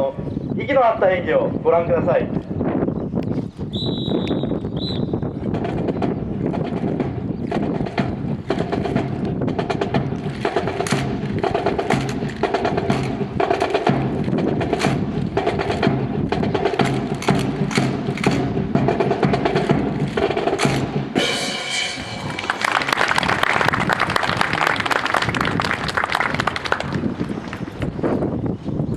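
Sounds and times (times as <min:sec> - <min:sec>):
marching drums playing: 0:05.5 - 0:24.2
sharp wood-block clicks: 0:16.8 - 0:18.4.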